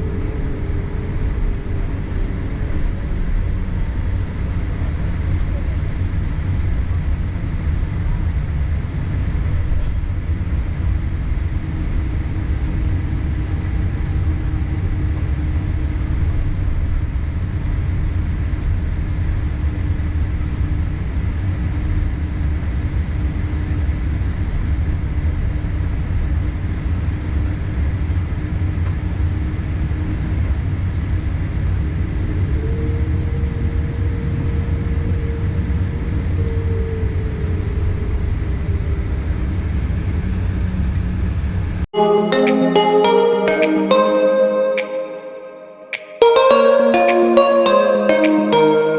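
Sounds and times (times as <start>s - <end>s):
faint held tone: 42.0s - 48.9s.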